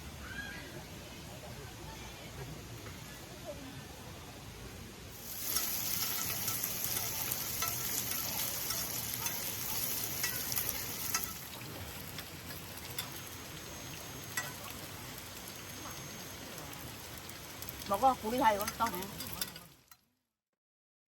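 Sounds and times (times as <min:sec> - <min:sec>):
meat sizzling with crackling pops: 0:05.1 - 0:20.1.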